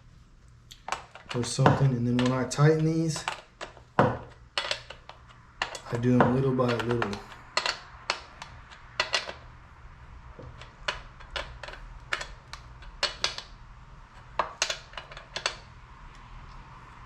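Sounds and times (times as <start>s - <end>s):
wrench clicking on metal nuts: 0.9s - 9.5s, 10.4s - 13.5s, 14.2s - 15.7s.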